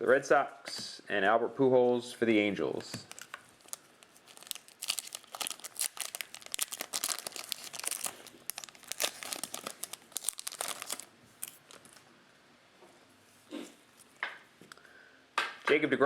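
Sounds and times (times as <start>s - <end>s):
foil wrappers crinkling and tearing: 3.0s - 12.0s.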